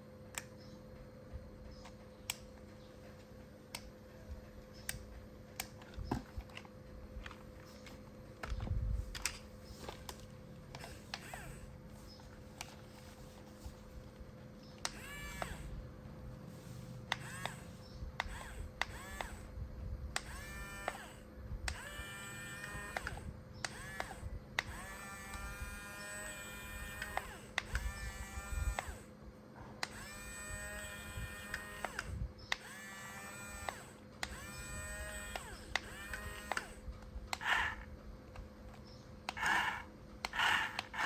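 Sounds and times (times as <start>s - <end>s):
small electric motors whining: 5.7s - 29.2s, 29.8s - 41.0s
motor start click: 14.8s - 15.8s, 26.4s - 29.0s, 29.8s - 37.9s, 39.3s - 41.0s.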